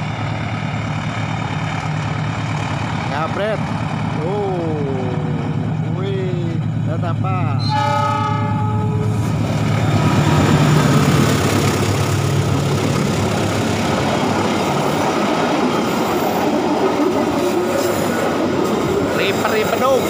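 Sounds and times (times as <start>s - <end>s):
train wheels on rails: 0.0s - 8.2s, 8.9s - 20.0s
diesel locomotive engine hum: 0.0s - 20.0s
train horn: 7.6s - 9.2s.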